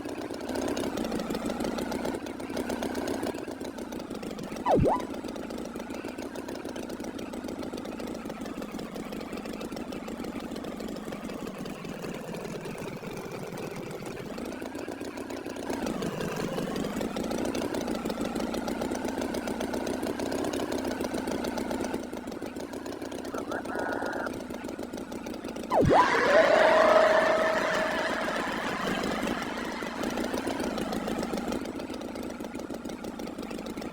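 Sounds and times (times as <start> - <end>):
engine running with wavering pitch: 0.0 - 5.7, 21.4 - 33.9.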